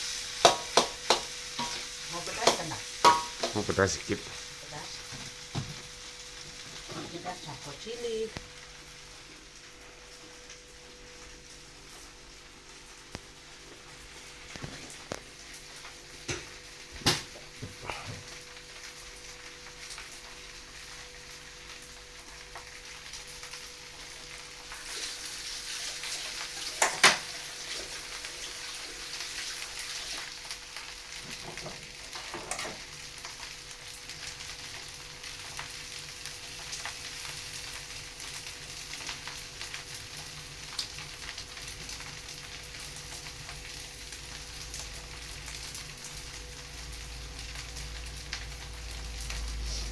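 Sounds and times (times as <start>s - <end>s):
rice sizzling in a hot pan: 0.0s - 49.9s
utensil knocking against pan: 2.4s - 3.6s.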